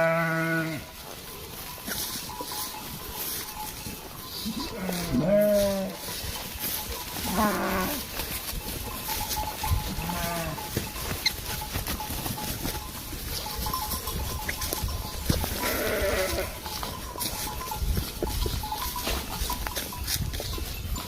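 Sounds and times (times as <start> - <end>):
farm animal bleating: 0.0 - 21.0.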